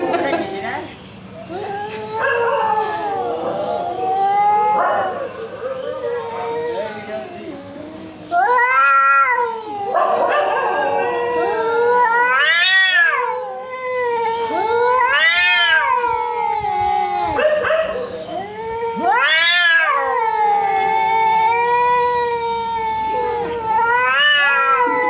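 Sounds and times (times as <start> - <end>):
cat low wavering yowl: 1.5 - 25.0
cat loud rising yowls: 8.3 - 17.6, 18.3 - 25.0.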